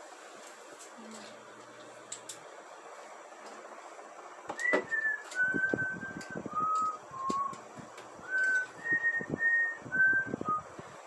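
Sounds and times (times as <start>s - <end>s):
person whistling a tune: 4.6s - 7.6s, 8.2s - 10.7s.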